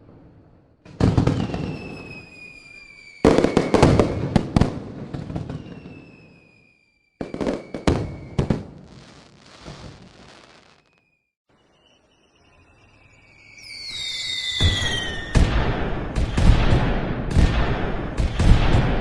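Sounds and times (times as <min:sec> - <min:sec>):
fireworks banging and crackling: 0:00.0 - 0:11.1, 0:14.3 - 0:19.0
falling whistling tones: 0:01.2 - 0:04.5, 0:05.4 - 0:15.5.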